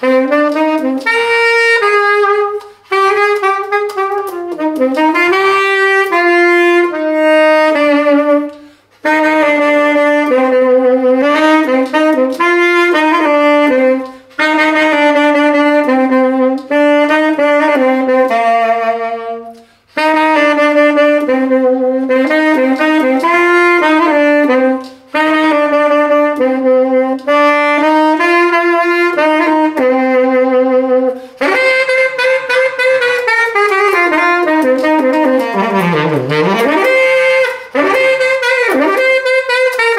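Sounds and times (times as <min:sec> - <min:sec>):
saxophone melody: 0:00.0 - 0:39.9.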